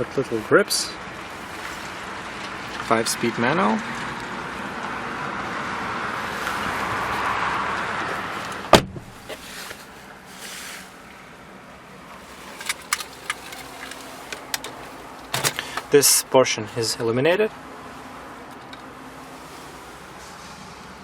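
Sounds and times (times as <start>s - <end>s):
sharp thud: 8.7s - 9.2s.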